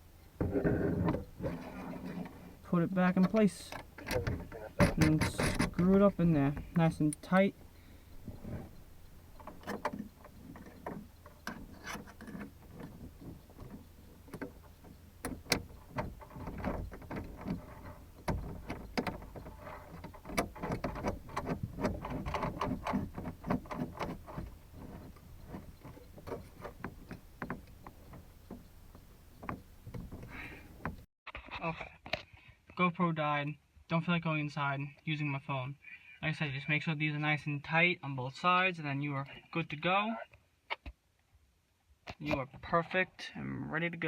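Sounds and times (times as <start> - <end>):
clicks knocks and scraping: 0.2 - 31.1.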